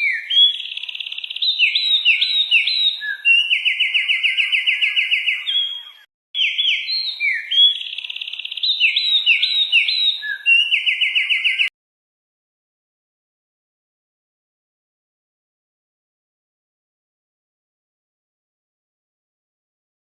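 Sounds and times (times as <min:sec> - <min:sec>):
songbird singing trills: 0:00.0 - 0:11.7.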